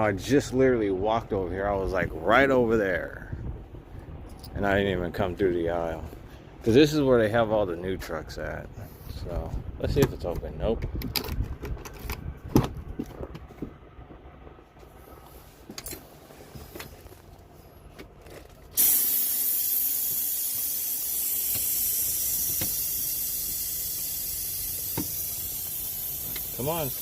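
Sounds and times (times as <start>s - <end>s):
compressed air hissing: 18.8s - 27.0s.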